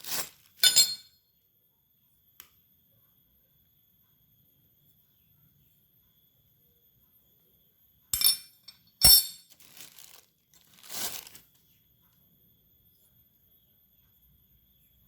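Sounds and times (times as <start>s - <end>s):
hard parts clinking: 0.1s - 1.1s, 8.2s - 10.0s.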